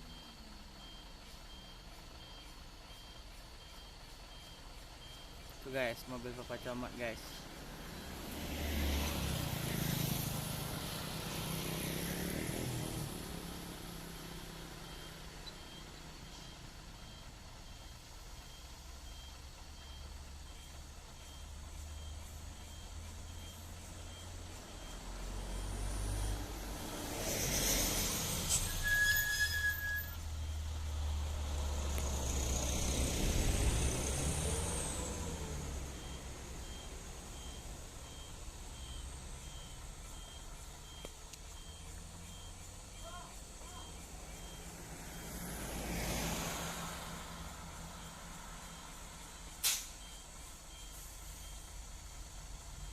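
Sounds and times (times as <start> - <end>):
vehicle engine driving past: 7.1 - 16.3, 21.6 - 28.8, 30.1 - 43.0, 43.6 - 49.6
faint short beeps: 28.5 - 30.3, 36.0 - 45.3.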